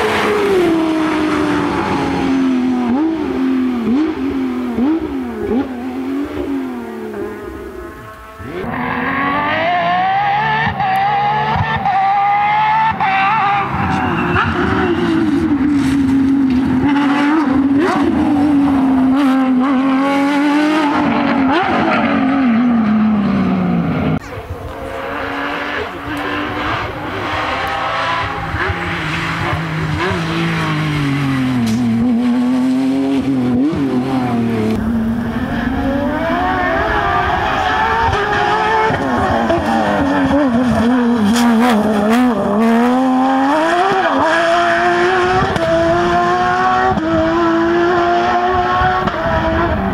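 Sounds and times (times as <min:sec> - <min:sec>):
rally car engines at full throttle: 0:00.0 - 0:49.9
tyre squeal: 0:13.2 - 0:15.8.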